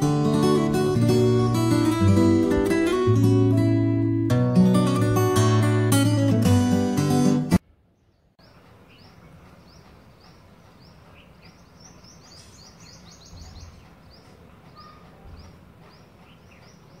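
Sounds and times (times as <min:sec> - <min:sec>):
small birds chirping: 0:07.8 - 0:17.0.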